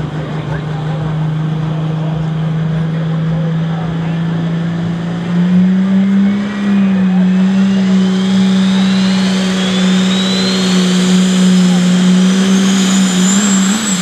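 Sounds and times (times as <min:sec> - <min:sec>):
truck engine at high revs: 0:00.0 - 0:14.0
thin whine: 0:06.6 - 0:14.0.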